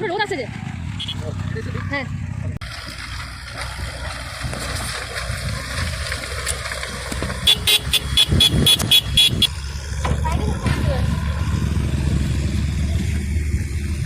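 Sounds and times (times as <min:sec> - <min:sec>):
engine and wind rumble: 0:00.0 - 0:14.0
vehicle horn short beeps: 0:01.0 - 0:01.3, 0:07.5 - 0:09.5.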